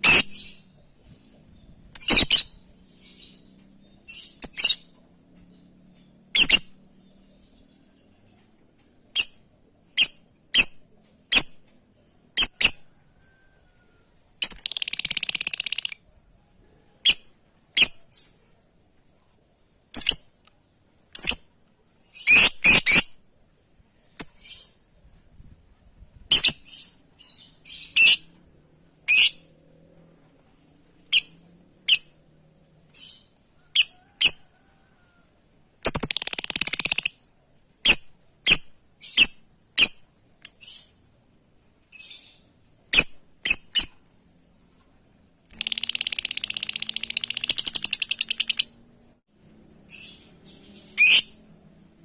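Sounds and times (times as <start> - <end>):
lovebird chirps: 0.0 - 5.0, 12.3 - 13.4, 14.4 - 16.2, 19.9 - 20.5, 21.1 - 23.2, 26.3 - 28.3, 35.8 - 41.0, 41.9 - 44.0, 45.4 - 48.9, 49.9 - 51.4.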